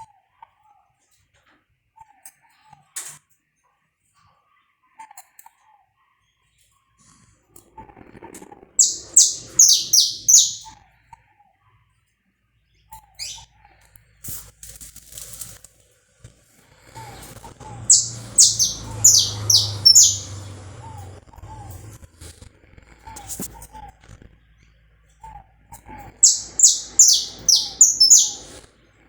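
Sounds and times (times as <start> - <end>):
faint short bird calls: 8.8 - 10.7, 17.9 - 20.5, 26.2 - 28.5
finch singing: 8.8 - 10.7, 13.2 - 13.4, 17.8 - 21.0, 26.2 - 28.6.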